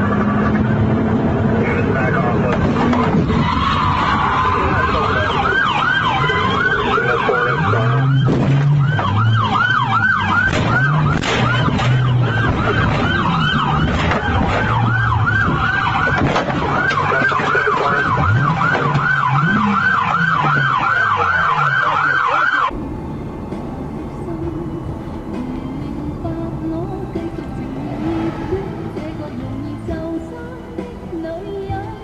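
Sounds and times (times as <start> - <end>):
vehicle engine revving: 0.0 - 31.2
police siren yelping: 3.0 - 22.8.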